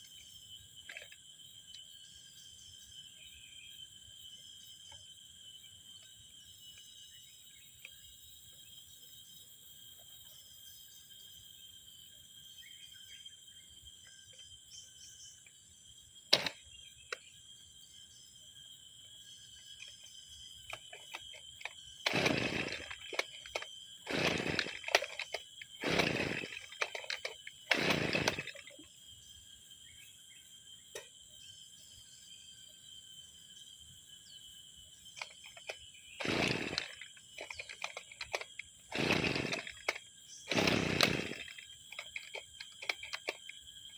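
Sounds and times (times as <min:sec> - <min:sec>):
brush cutter pull-starting: 0:00.9 - 0:01.2, 0:16.3 - 0:16.6, 0:20.6 - 0:28.8, 0:35.2 - 0:43.7
sharp click: 0:16.3 - 0:16.6.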